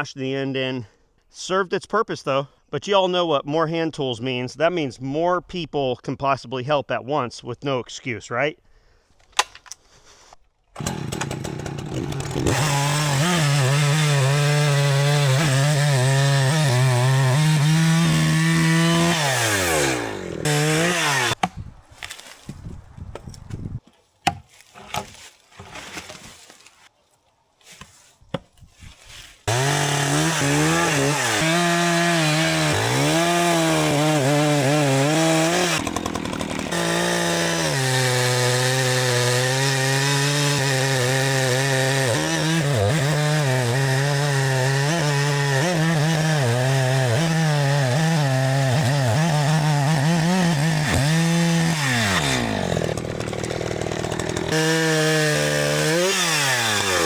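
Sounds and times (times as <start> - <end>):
chainsaw cutting wood: 9.3 - 22.3, 29.4 - 57.0.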